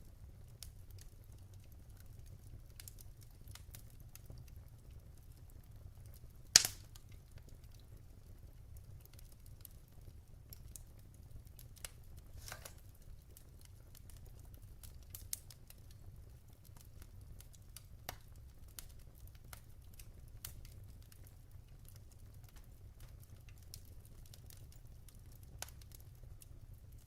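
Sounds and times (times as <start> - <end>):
low fire rumble: 0.0 - 27.0
wood fire crackling: 0.0 - 27.0.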